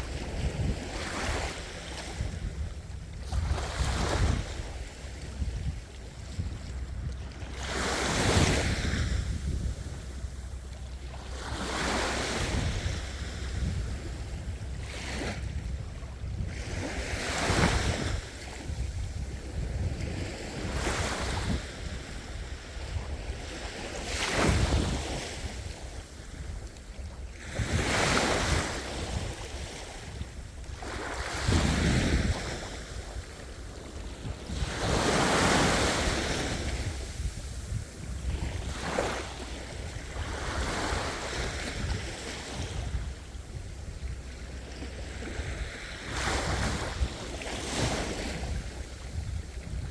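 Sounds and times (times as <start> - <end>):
sea waves breaking: 0.0 - 49.9
steady low rumble: 12.4 - 16.9, 36.6 - 40.4.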